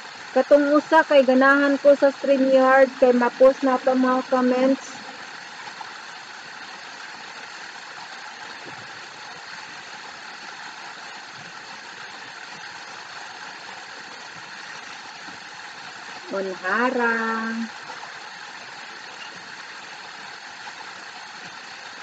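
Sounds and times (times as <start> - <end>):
waterfall rushing: 0.6 - 6.0.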